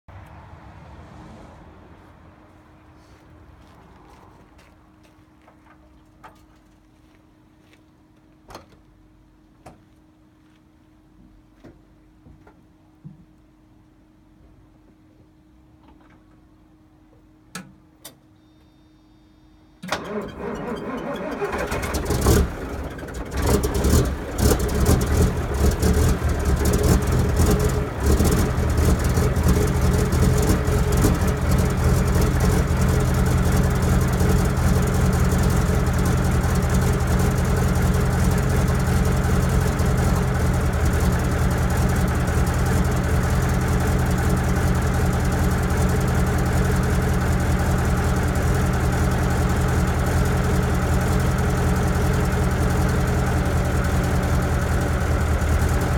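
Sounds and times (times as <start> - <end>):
diesel engine idling: 20.0 - 55.9.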